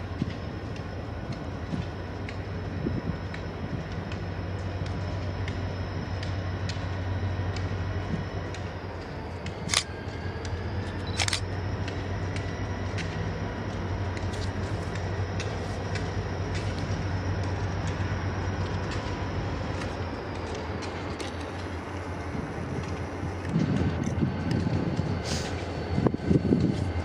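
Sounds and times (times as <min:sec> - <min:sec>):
high-pitched whines: 0:00.0 - 0:27.0
train running with low hum: 0:00.0 - 0:27.0
sharp clicks: 0:09.4 - 0:13.2.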